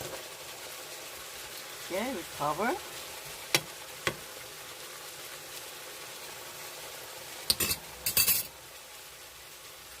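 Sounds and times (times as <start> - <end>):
stir-fry sizzling in a pan: 0.0 - 10.0
kitchenware clattering: 7.5 - 8.6.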